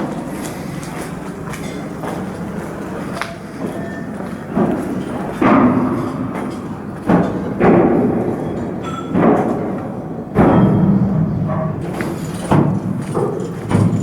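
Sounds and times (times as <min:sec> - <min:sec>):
work noise: 0:00.0 - 0:14.0
heavy knocks: 0:07.0 - 0:14.0.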